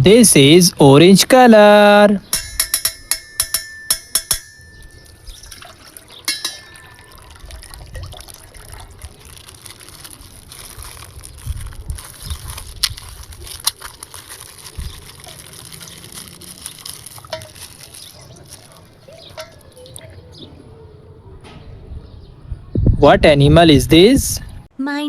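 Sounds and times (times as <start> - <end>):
rumbling handling noise: 2.2 - 24.7
water sloshing and splashing: 4.7 - 20.8.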